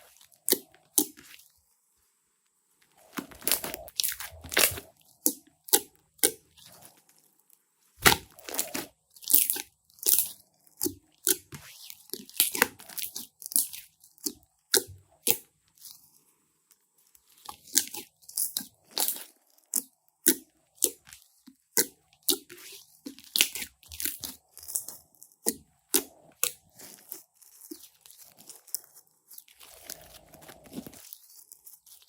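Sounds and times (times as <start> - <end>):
slime crackling and popping: 8.0 - 11.5.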